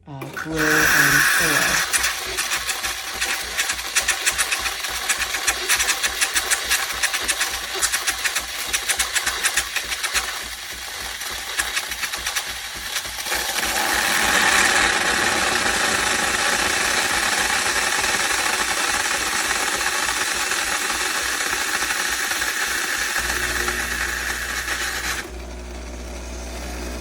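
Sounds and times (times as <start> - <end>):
coffee machine pump pulsing: 0.0 - 27.0
loud steam hiss: 0.4 - 2.5.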